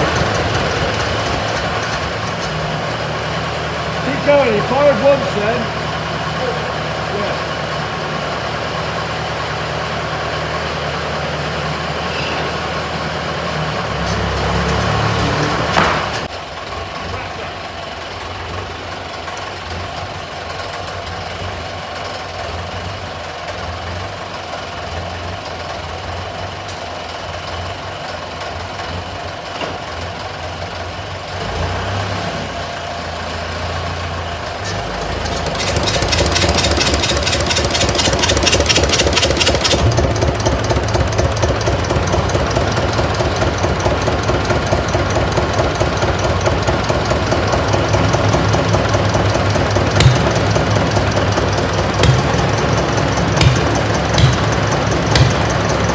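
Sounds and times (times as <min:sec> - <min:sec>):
fast even engine knocking: 0:00.0 - 0:06.2, 0:34.8 - 0:55.9
diesel engines running: 0:00.0 - 0:55.9
rapid high ticking: 0:35.3 - 0:55.9.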